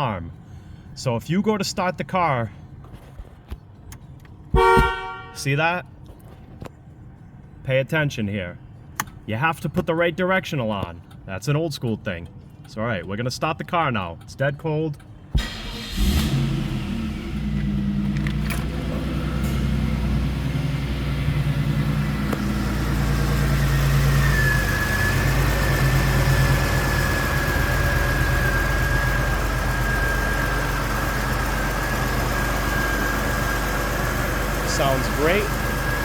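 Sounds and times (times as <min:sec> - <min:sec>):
car engine starting and idling: 0:03.8 - 0:05.4, 0:15.0 - 0:36.0.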